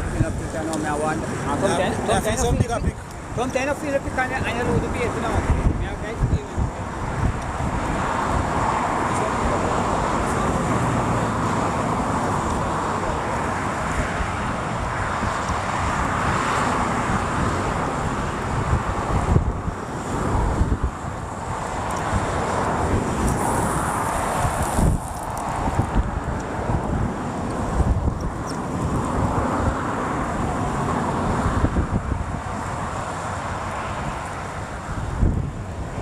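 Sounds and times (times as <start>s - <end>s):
steady rushing roar: 0.0s - 36.0s
wind buffeting microphone: 0.0s - 36.0s.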